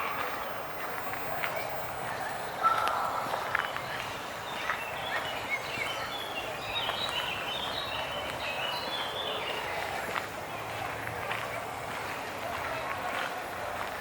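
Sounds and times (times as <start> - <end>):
small bird singing: 0.0 - 9.8
footstep clicks on path: 0.0 - 14.0.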